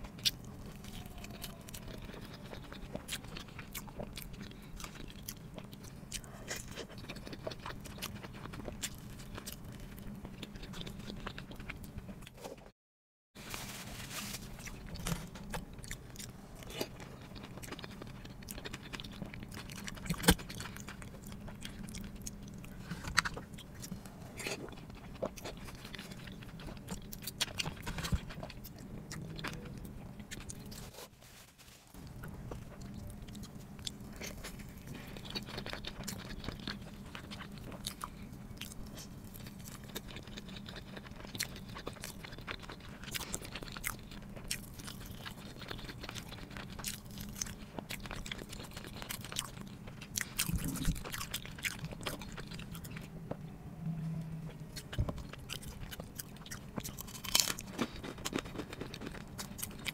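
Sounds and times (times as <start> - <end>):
wet chewing with mouth clicks: 0.0 - 12.5, 14.6 - 30.9, 32.0 - 53.5, 54.4 - 59.9
low steady hum: 0.0 - 12.7, 13.4 - 59.9
food crunches: 14.2 - 30.9, 32.0 - 53.1, 54.8 - 59.9.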